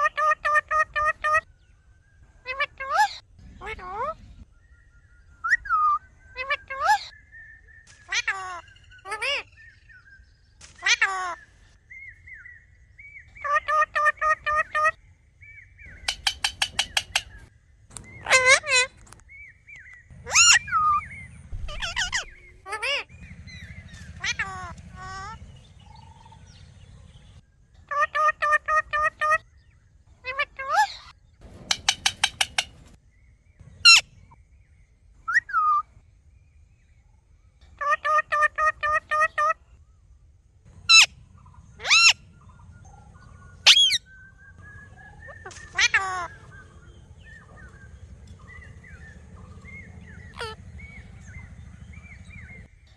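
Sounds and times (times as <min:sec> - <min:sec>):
parrot chirping and screeching: 0:00.0 - 0:01.4, 0:02.4 - 0:04.2, 0:08.1 - 0:09.5, 0:10.8 - 0:11.4, 0:13.4 - 0:15.0, 0:15.9 - 0:17.5, 0:18.1 - 0:19.1, 0:20.2 - 0:25.4, 0:30.2 - 0:32.9, 0:33.8 - 0:34.1, 0:37.8 - 0:39.6, 0:40.8 - 0:41.2, 0:41.8 - 0:42.4, 0:43.4 - 0:44.2, 0:45.0 - 0:46.6, 0:50.2 - 0:50.6
parrot whistled chirps: 0:05.3 - 0:07.0
parrot clicking chirps: 0:15.9 - 0:17.4, 0:31.7 - 0:32.8.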